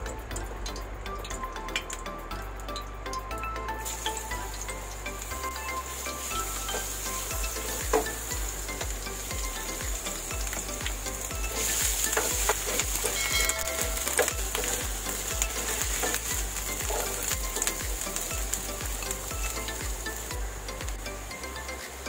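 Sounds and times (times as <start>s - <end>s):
soft low music beat: 0.0s - 22.0s
garlic sizzling in hot oil: 1.0s - 22.0s.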